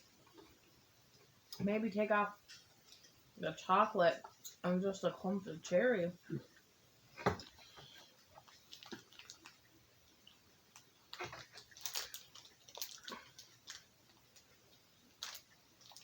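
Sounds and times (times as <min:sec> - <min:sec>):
chewing chocolate bar: 0:07.4 - 0:16.0.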